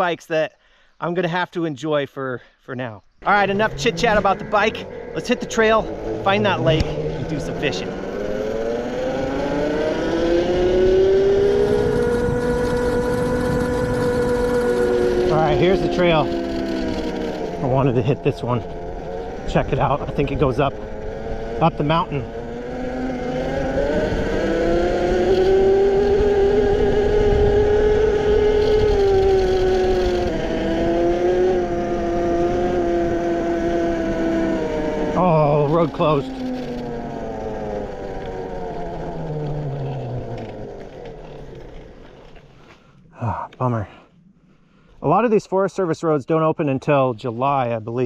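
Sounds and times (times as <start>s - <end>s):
low rumble: 3.1s - 8.9s
electric motor whining: 3.2s - 42.7s
tyre and wind rumble: 3.3s - 42.6s.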